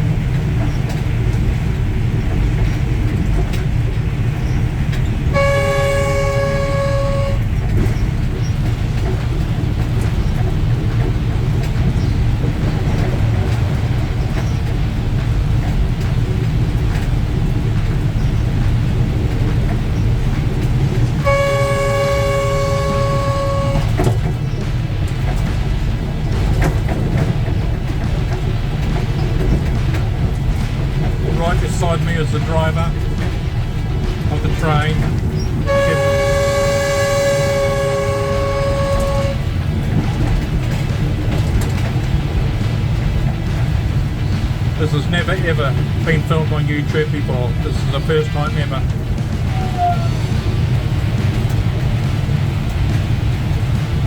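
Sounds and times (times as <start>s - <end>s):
train rumbling: 0.0s - 54.0s
two-note train horn blast: 5.3s - 8.5s, 20.6s - 24.4s, 35.6s - 39.7s, 49.5s - 50.5s.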